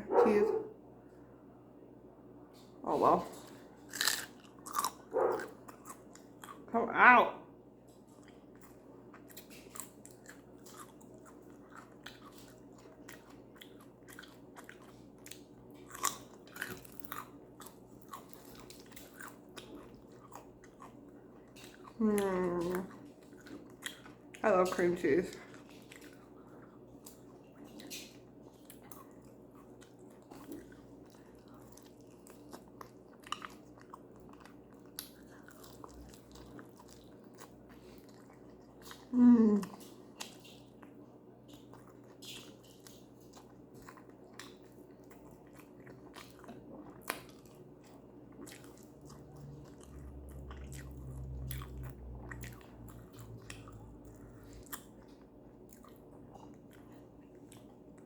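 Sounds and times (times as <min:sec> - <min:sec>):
chewing and biting food: 0:02.6 - 0:06.7, 0:07.8 - 0:58.0
person humming mmm: 0:39.1 - 0:39.7.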